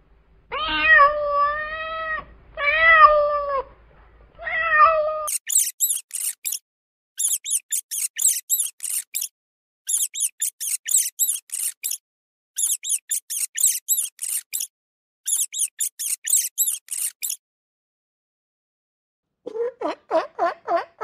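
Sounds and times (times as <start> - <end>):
rabbit squeaking: 5.2 - 6.6, 7.2 - 9.3, 9.9 - 12.0, 12.6 - 14.7, 15.3 - 17.4.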